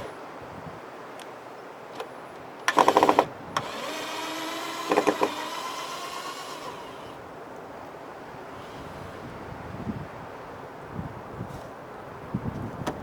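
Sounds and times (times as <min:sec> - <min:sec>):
small electric motor whirring: 0:02.7 - 0:07.2.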